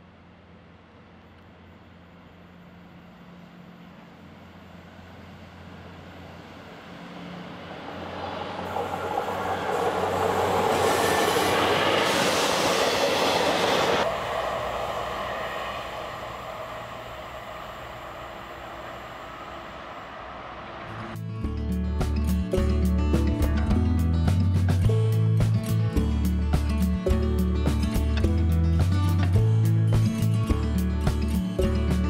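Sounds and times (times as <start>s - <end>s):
loud wheel-and-rail noise: 0.0s - 21.2s
low engine drone: 0.0s - 23.1s.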